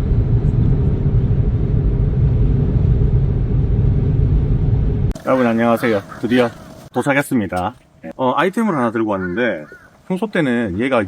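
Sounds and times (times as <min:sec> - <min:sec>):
faint engine hum: 0:00.0 - 0:07.0
car driving rumble: 0:00.0 - 0:08.1.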